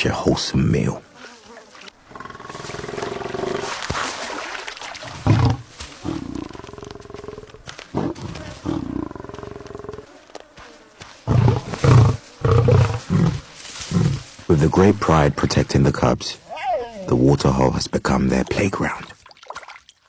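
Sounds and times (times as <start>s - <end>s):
lion growling and snarling: 2.0s - 4.0s, 5.0s - 14.4s
lion deep grunts: 2.1s - 3.8s, 5.0s - 10.1s, 11.3s - 14.3s.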